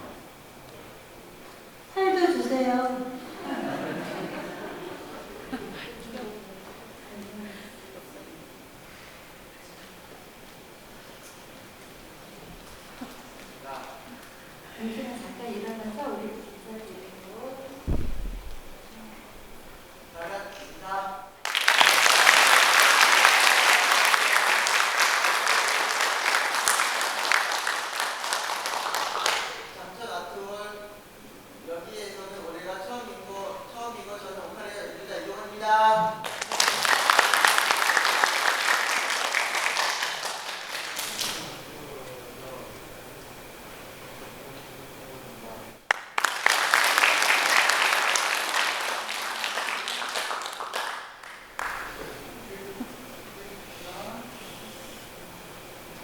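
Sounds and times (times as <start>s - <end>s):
room murmur: 0.0s - 56.0s
audience applauding: 21.4s - 29.8s, 36.2s - 41.6s, 45.9s - 52.4s.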